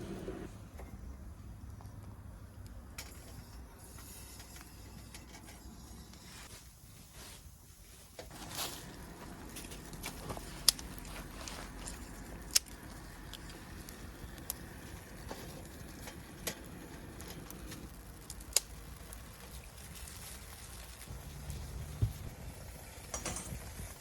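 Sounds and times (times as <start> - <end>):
campfire crackling and popping: 8.2 - 24.0.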